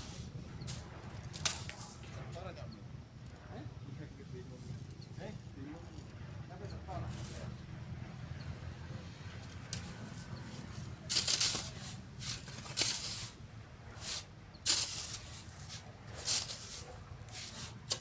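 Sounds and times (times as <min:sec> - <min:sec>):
sand shovelled and sifted: 0:00.0 - 0:02.4, 0:07.0 - 0:07.6, 0:09.6 - 0:18.0.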